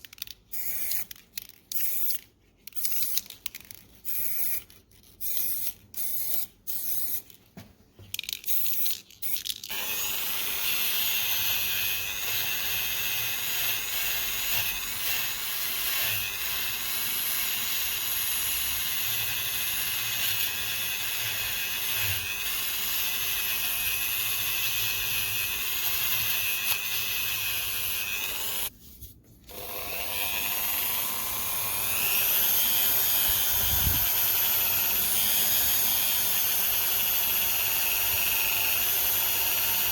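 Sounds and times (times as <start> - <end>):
small electric power tool running: 9.7 - 28.7, 29.5 - 39.9.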